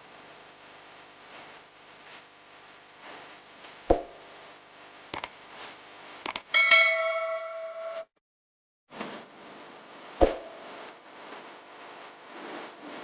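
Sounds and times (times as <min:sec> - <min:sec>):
faint hiss: 0:00.0 - 0:06.2
bell-like ringing tone: 0:06.6 - 0:08.1.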